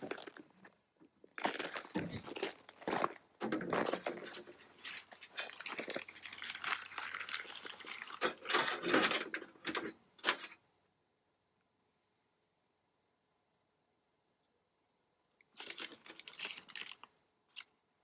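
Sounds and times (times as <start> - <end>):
metal tools clattering and scraping: 1.5 - 10.6.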